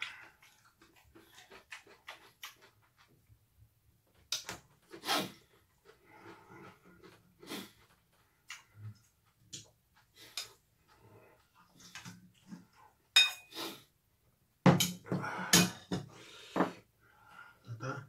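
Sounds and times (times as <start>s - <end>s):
wet chewing smacks: 0.0s - 3.3s.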